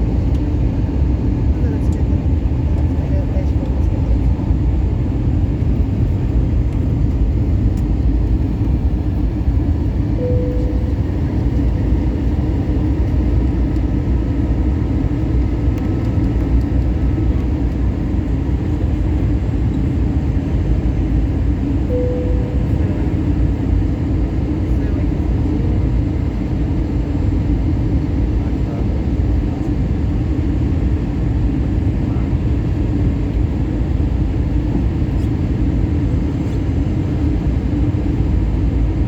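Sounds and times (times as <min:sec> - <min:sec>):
airplane cabin engine rumble: 0:00.0 - 0:39.0
short mid-pitched tone: 0:10.2 - 0:11.6, 0:21.9 - 0:23.6.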